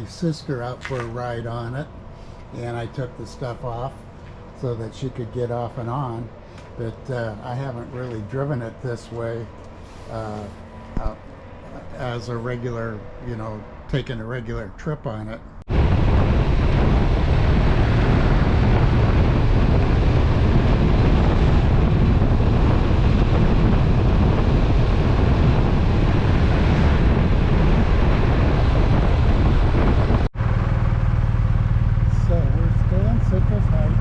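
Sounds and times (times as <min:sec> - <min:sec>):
road noise: 0:00.0 - 0:34.0
motorcycle engine: 0:15.7 - 0:34.0
wind rushing over microphone: 0:15.7 - 0:34.0.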